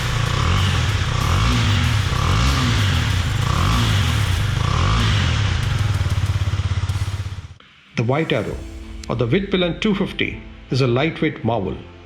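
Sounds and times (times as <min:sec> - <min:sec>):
motorcycle engine revving and idling: 0:00.0 - 0:07.6.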